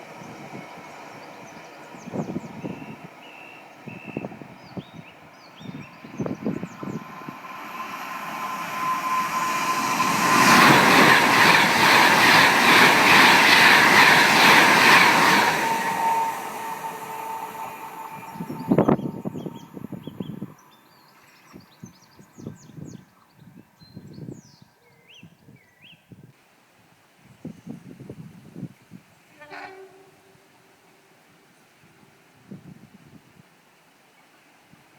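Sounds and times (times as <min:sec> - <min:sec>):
train passing: 0:00.0 - 0:20.7, 0:29.3 - 0:32.9
steady high tone: 0:06.3 - 0:12.6, 0:15.1 - 0:19.9
wheels clicking over rail joints: 0:10.0 - 0:16.0.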